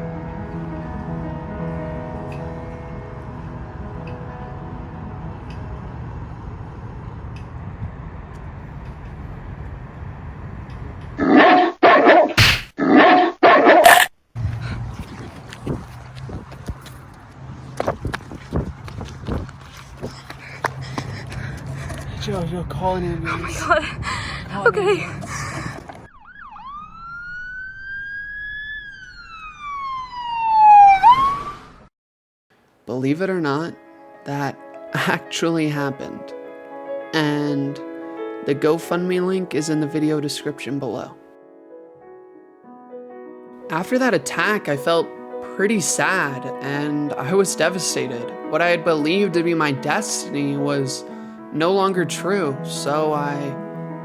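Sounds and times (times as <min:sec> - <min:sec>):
siren wailing: 0:11.2 - 0:14.6, 0:24.5 - 0:31.9.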